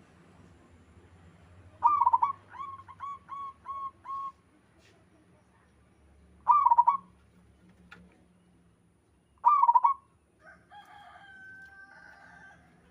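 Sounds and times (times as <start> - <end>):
dove cooing: 1.8 - 4.3, 6.5 - 7.0, 9.4 - 10.0.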